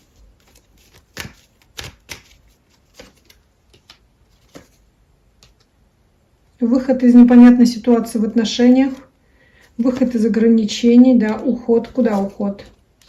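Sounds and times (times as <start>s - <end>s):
cards clicking and tapping on table: 0.9s - 4.8s.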